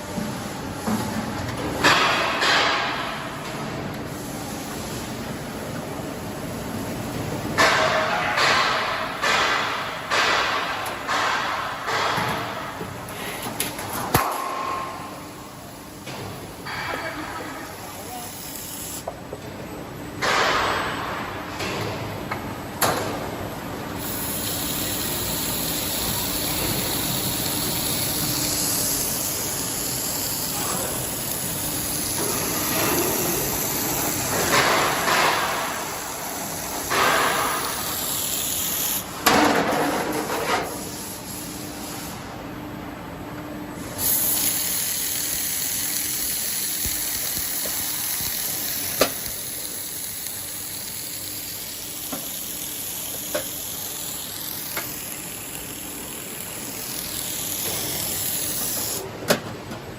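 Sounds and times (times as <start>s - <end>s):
machinery hissing: 24.0s - 39.1s, 43.8s - 59.1s.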